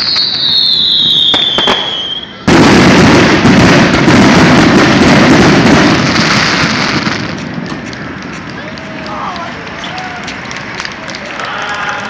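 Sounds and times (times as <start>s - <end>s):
firework whistle: 0.0s - 3.4s
firework crackle: 0.0s - 12.0s.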